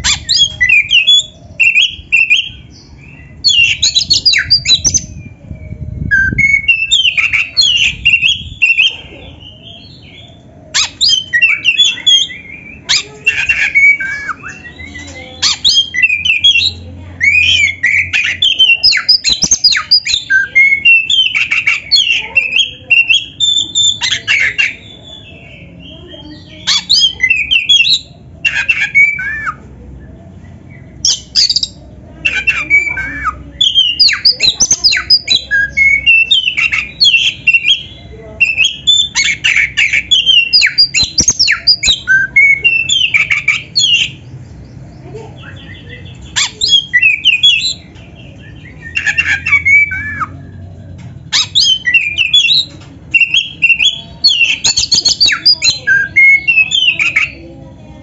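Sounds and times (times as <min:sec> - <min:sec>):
bird singing whistles: 0:03.4 - 0:05.2, 0:06.0 - 0:08.9, 0:31.0 - 0:44.2, 0:45.4 - 0:47.8, 0:48.5 - 0:50.4, 0:51.3 - 0:57.4.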